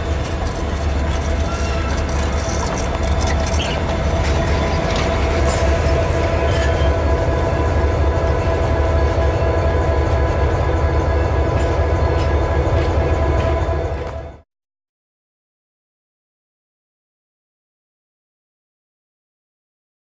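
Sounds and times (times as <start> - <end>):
train wheels rumbling on track: 0.0 - 14.4.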